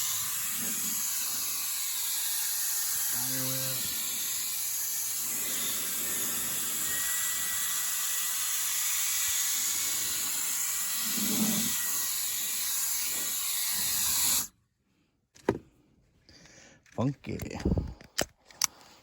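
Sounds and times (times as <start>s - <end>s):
air blower hissing: 0.0s - 14.5s.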